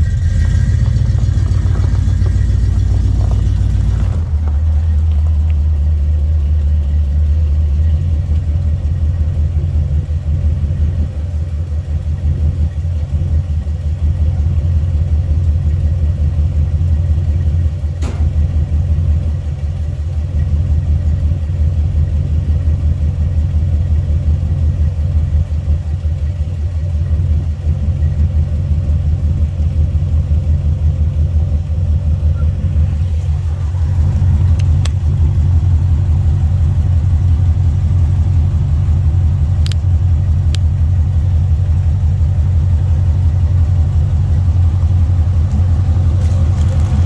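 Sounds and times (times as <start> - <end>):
pickup engine idling: 0.0 - 47.0
sharp click: 18.0 - 18.4.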